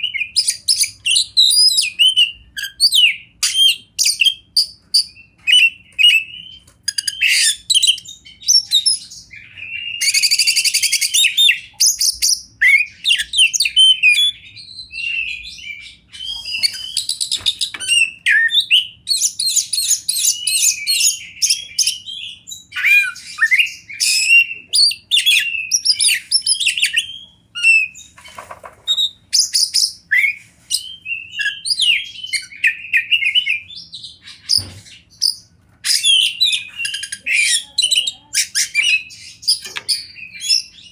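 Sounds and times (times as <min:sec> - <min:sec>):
magpie-robin singing: 0:00.0 - 0:40.9
harsh buzzy bird rattles: 0:28.2 - 0:29.0.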